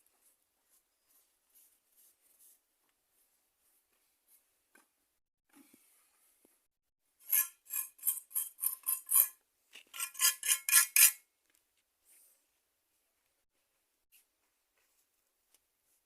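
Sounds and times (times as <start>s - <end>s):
hand tool scraping hard surface: 7.2s - 11.2s.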